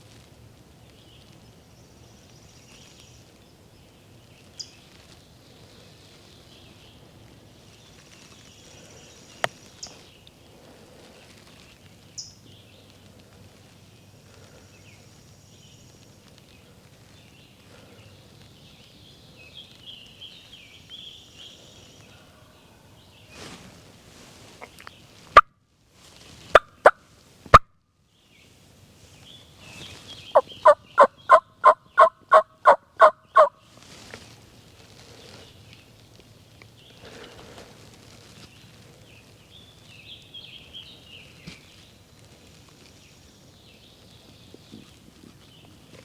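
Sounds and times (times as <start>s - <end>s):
turkey call clucks: 26.5s - 27.6s, 30.3s - 33.5s
turkey call yelps: 30.3s - 33.5s.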